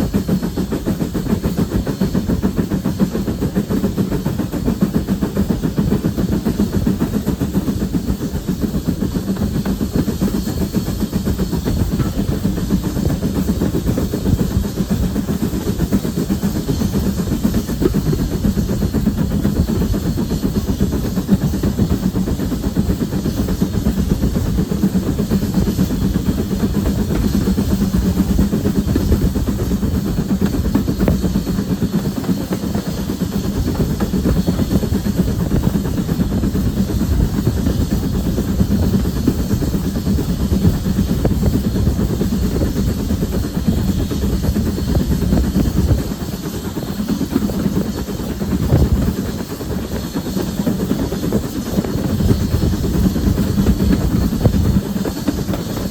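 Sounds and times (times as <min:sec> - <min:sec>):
locomotive engine rumble: 0:00.0 - 0:55.9.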